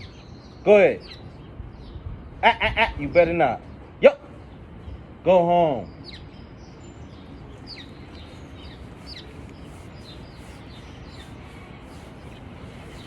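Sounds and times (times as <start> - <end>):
steady background noise: 0.0 - 13.0
small bird chirping: 5.9 - 13.0.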